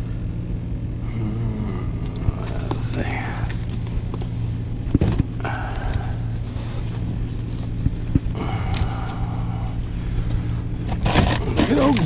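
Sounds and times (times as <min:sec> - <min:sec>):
low engine hum: 0:00.0 - 0:12.0
gear knocking and clattering: 0:10.8 - 0:12.0.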